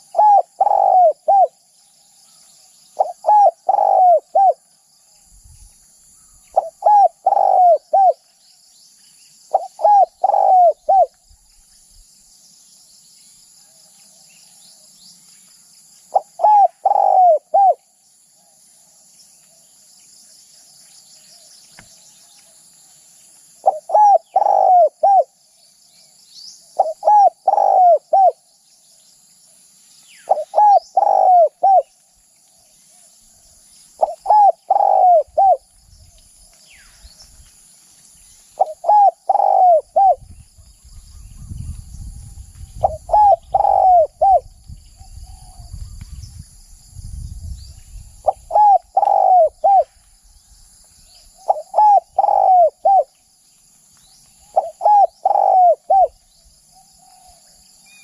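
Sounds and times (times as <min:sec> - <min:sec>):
dove cooing: 0:00.0 - 0:01.6, 0:03.0 - 0:04.6, 0:06.5 - 0:08.2, 0:09.5 - 0:11.2, 0:16.1 - 0:17.8, 0:23.6 - 0:25.4, 0:26.8 - 0:28.4, 0:30.3 - 0:31.9, 0:34.0 - 0:35.6, 0:38.6 - 0:40.2, 0:42.8 - 0:46.0, 0:48.2 - 0:50.0, 0:51.4 - 0:53.1, 0:54.4 - 0:56.2
small birds chirping: 0:00.0 - 0:13.4, 0:14.1 - 0:18.1, 0:19.2 - 0:58.0
high insect hiss: 0:00.0 - 0:58.0.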